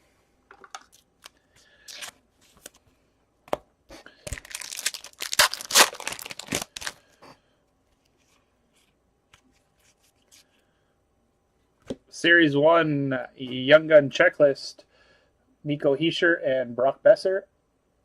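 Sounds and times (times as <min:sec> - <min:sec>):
wrapper tearing and crinkling: 0:00.9 - 0:02.2, 0:04.3 - 0:07.0.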